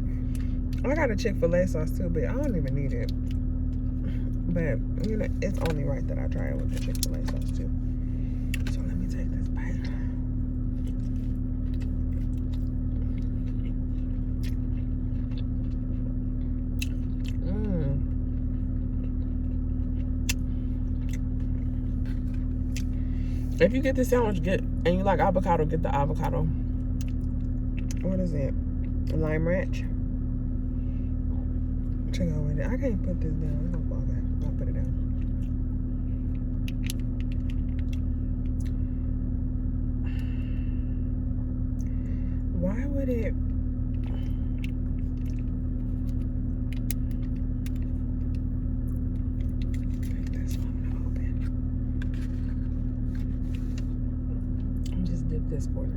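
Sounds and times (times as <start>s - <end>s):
steady low hum: 0.0s - 55.9s
person chewing: 10.6s - 23.6s, 26.8s - 28.0s, 43.9s - 55.0s.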